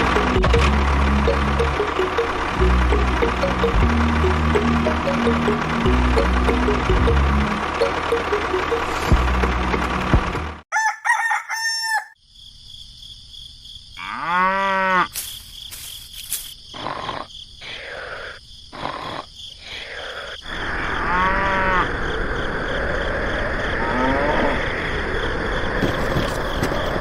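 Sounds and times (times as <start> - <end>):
rooster crowing: 10.7 - 12.2
farmyard animal calls: 14.0 - 22.0.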